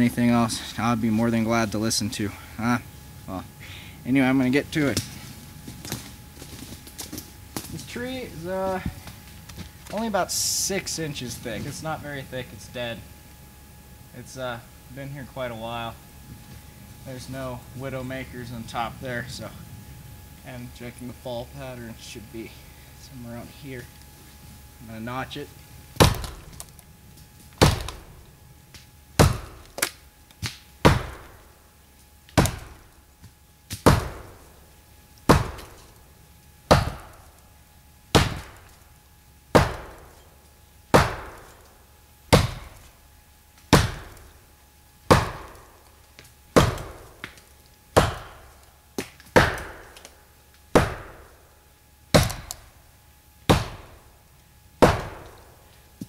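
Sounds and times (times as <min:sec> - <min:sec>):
axe chopping wood: 0:26.0 - 0:26.7, 0:27.6 - 0:28.1, 0:29.2 - 0:31.4, 0:32.3 - 0:32.8, 0:33.7 - 0:34.4, 0:35.3 - 0:35.9, 0:36.7 - 0:37.3, 0:38.1 - 0:38.7, 0:39.5 - 0:40.1, 0:40.9 - 0:41.6, 0:42.3 - 0:42.9, 0:43.7 - 0:44.3, 0:45.1 - 0:45.8, 0:46.6 - 0:50.1, 0:50.7 - 0:51.3, 0:52.1 - 0:52.6, 0:53.5 - 0:54.0, 0:54.8 - 0:55.4.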